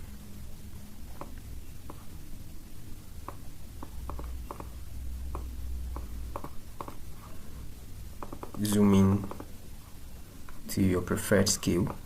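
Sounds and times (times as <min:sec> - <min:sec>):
low steady hum: 0:00.0 - 0:12.0
computer mouse clicking: 0:03.3 - 0:04.7, 0:05.3 - 0:07.0, 0:08.2 - 0:09.5.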